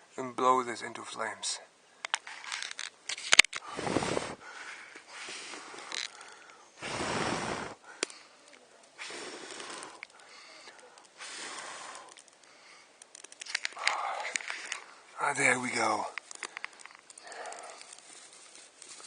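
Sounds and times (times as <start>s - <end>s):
sharp clicks: 2.0s - 3.7s, 8.0s - 14.9s, 15.9s - 18.9s
person blowing on kindling: 2.3s - 8.3s, 9.0s - 15.0s.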